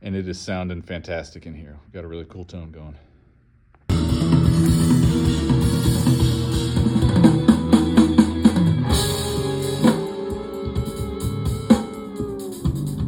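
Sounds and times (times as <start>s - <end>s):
rock band playing: 3.9s - 13.0s.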